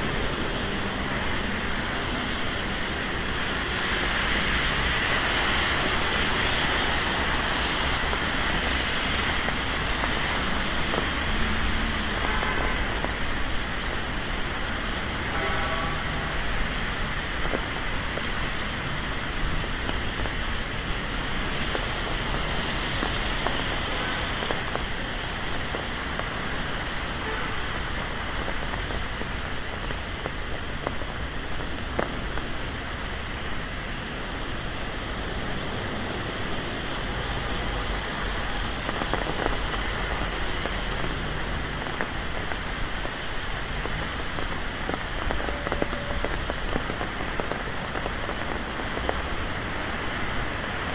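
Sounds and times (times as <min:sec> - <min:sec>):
rain on street: 0:00.0 - 0:50.9
rain drop taps: 0:37.5 - 0:50.9.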